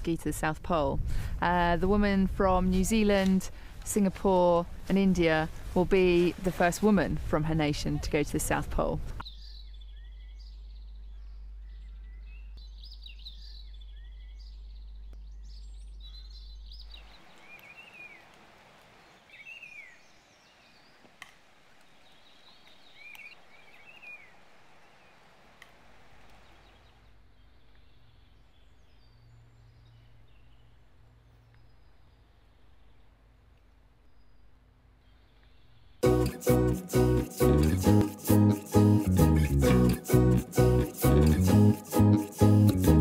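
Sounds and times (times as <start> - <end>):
soft outdoor hiss: 0.0 - 43.0
steady low hum: 9.0 - 17.0
birds chirping and warbling: 9.2 - 18.3, 19.0 - 21.1.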